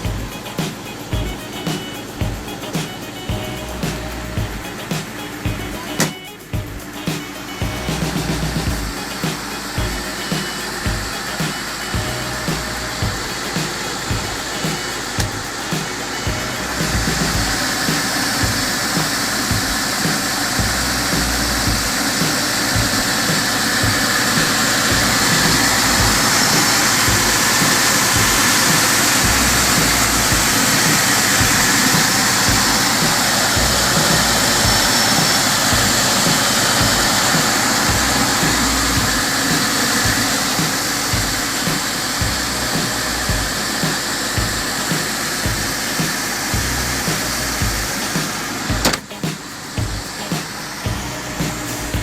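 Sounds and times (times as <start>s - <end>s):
car engine running: 7.7s - 49.0s.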